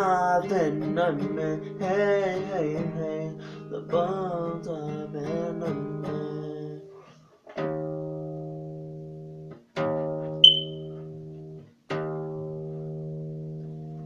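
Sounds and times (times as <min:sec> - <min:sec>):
acoustic guitar chords: 0:00.0 - 0:07.0, 0:07.6 - 0:11.3
sharp high ping: 0:10.4 - 0:10.8.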